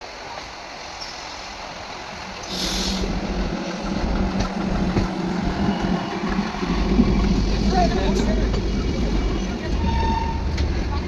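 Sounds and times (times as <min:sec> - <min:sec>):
burst of hiss: 0:02.4 - 0:03.1.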